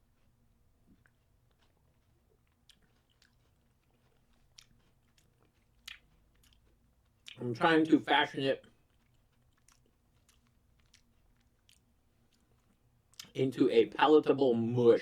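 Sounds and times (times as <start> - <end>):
chewing crunchy cookie: 0.0 - 13.6
wet mouth clicks: 4.3 - 7.4.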